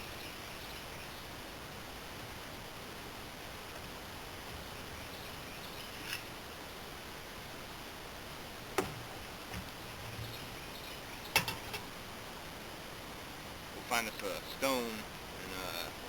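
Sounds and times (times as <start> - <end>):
faint background hiss: 0.0 - 16.0
sharp clicks and knocks: 8.8 - 10.3, 11.3 - 11.9.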